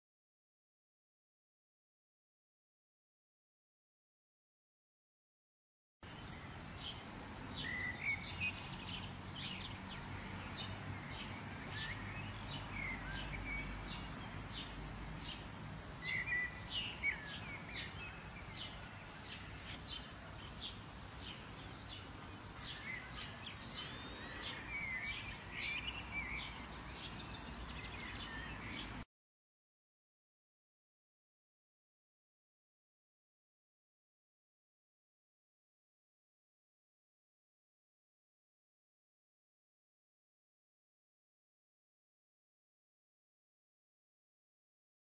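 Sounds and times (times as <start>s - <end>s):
birds chirping: 6.0s - 29.0s.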